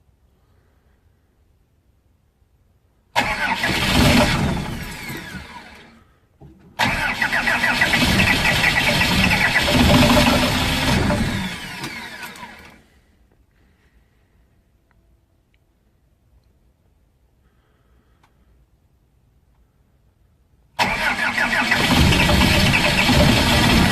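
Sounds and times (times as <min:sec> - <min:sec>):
diesel engine cold-starting: 0:03.2 - 0:06.1, 0:06.8 - 0:12.9, 0:20.8 - 0:23.9.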